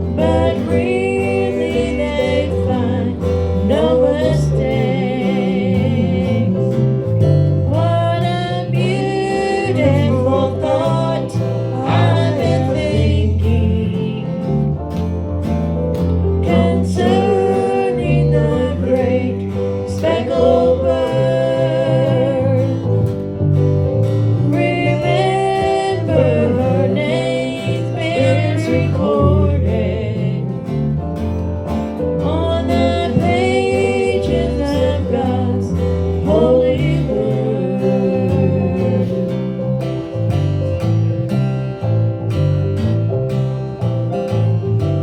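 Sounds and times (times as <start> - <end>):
person singing: 0.0 - 6.9, 7.7 - 14.6, 16.4 - 23.0, 24.4 - 30.6, 32.2 - 39.8
strummed acoustic guitar: 0.0 - 45.0.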